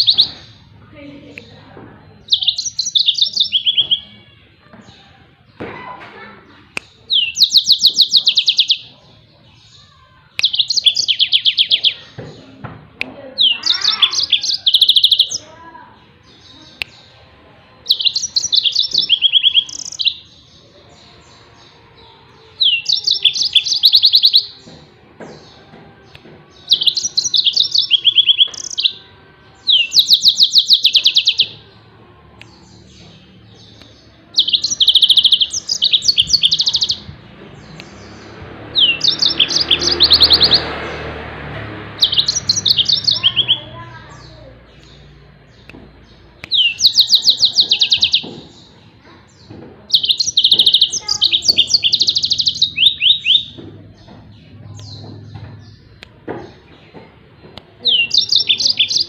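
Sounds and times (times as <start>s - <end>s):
canary singing rapid bursts: 0.0s - 0.8s, 2.2s - 4.1s, 6.8s - 9.0s, 9.6s - 12.2s, 13.4s - 15.5s, 17.8s - 20.5s, 22.6s - 24.7s, 26.5s - 29.0s, 29.6s - 31.6s, 32.5s - 48.9s, 49.9s - 54.1s, 57.8s - 59.0s.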